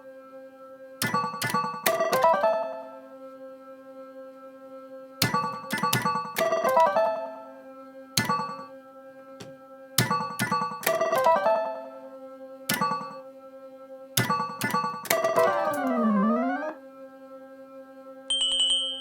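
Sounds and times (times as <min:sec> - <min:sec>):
low machine background tone: 0:00.0 - 0:19.0
swooping electronic tone: 0:14.5 - 0:16.8.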